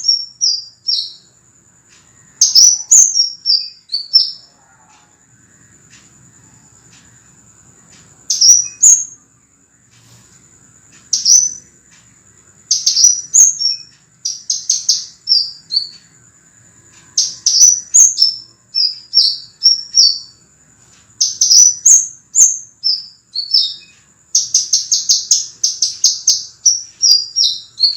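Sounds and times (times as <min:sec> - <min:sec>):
bird song high sharp chirps: 0:00.0 - 0:04.5, 0:08.2 - 0:09.3, 0:10.9 - 0:11.7, 0:12.6 - 0:16.2, 0:16.9 - 0:20.4, 0:21.1 - 0:27.9.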